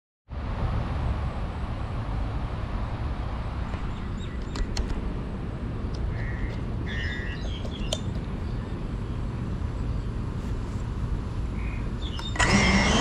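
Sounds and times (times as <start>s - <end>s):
low rumble and hiss: 0.3s - 12.8s
birds chirping: 3.7s - 12.9s.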